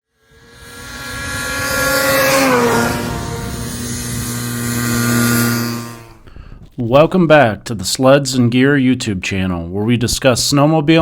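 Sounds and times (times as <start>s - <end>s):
snowmobile engine running: 0.1s - 6.6s.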